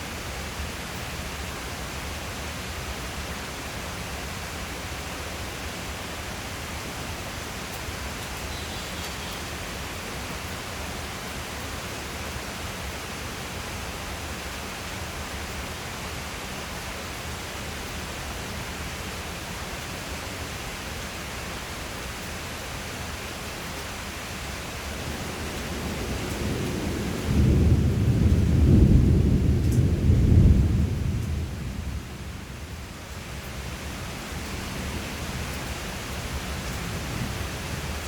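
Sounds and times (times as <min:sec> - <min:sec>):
steady rain falling: 0:00.0 - 0:38.0
low rumble of thunder: 0:25.0 - 0:33.2.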